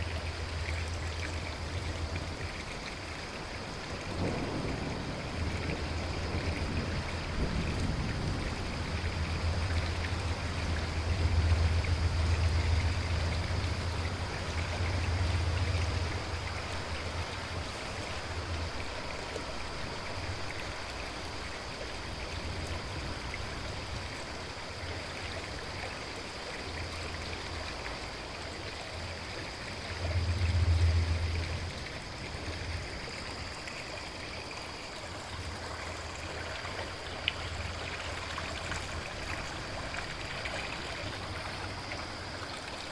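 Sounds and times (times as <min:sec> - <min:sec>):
river water flowing: 0:00.0 - 0:42.9
deep low rumbles: 0:29.8 - 0:32.9.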